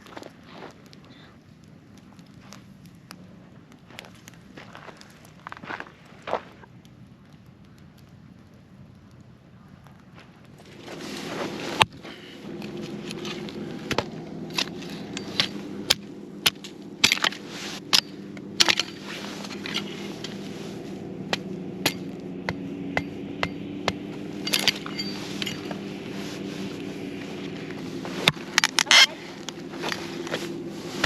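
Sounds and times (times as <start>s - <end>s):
campfire crackling and popping: 0.0s - 31.0s.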